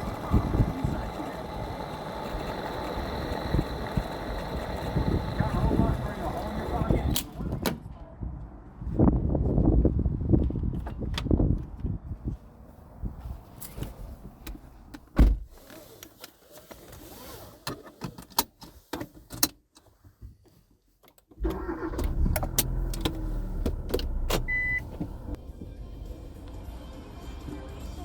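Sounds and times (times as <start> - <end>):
car engine starting and running: 0.0 - 7.3, 21.4 - 25.4
clicks and rattles in a car: 13.6 - 25.4
short beep: 24.4 - 24.9.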